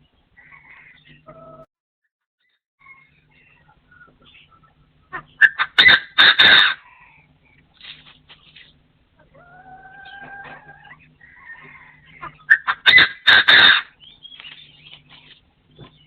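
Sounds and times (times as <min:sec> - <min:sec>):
partridge calling: 0:02.9 - 0:06.8, 0:09.7 - 0:16.0.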